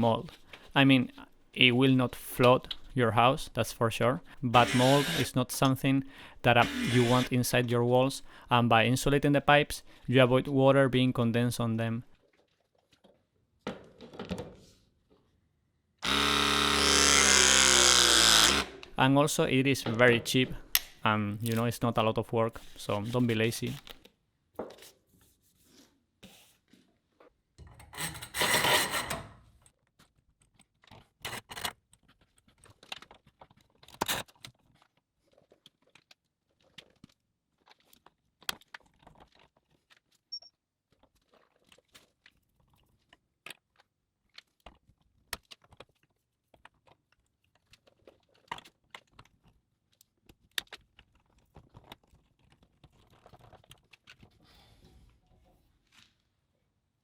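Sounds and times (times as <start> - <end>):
hands working on pipes: 0.0 - 8.4, 16.0 - 36.9.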